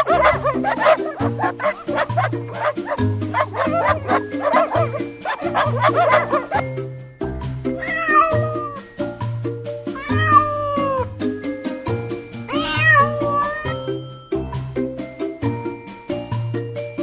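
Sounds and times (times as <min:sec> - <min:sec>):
cat meowing: 0:07.8 - 0:08.8, 0:10.0 - 0:11.1, 0:12.5 - 0:13.8.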